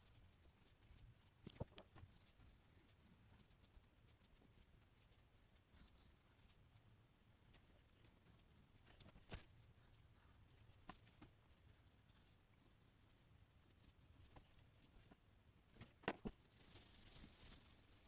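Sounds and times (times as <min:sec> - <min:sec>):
soft scratching: 0:00.0 - 0:18.0
drawing strokes on paper: 0:02.1 - 0:15.8.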